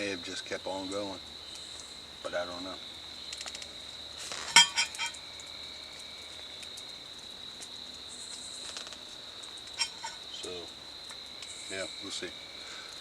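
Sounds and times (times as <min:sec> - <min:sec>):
crickets chirping: 0:00.0 - 0:13.0
sharp clinks: 0:04.5 - 0:05.2, 0:09.8 - 0:10.3.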